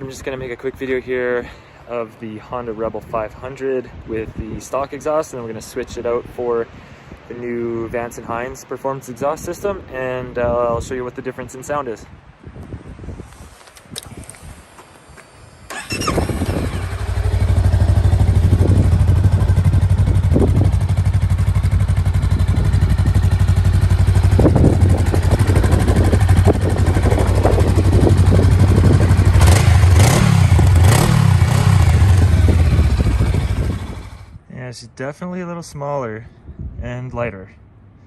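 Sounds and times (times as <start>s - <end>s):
motorcycle engine starting and idling: 15.5s - 34.4s.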